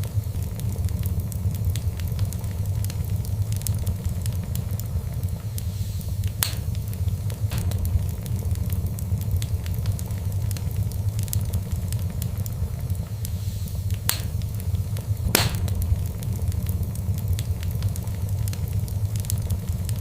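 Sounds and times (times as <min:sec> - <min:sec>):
wood fire crackling and popping: 0:00.0 - 0:20.0
low rumble: 0:06.1 - 0:20.0.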